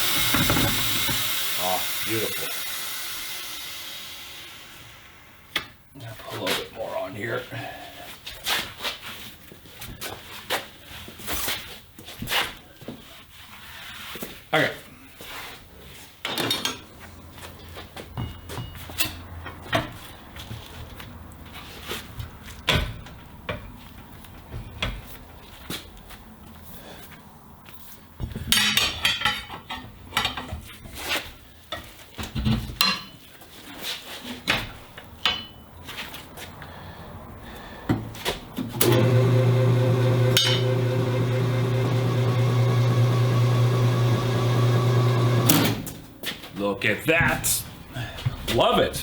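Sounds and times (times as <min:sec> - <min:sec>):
metal clanks and knocks: 0:18.1 - 0:20.0
electric motor humming: 0:38.8 - 0:45.8.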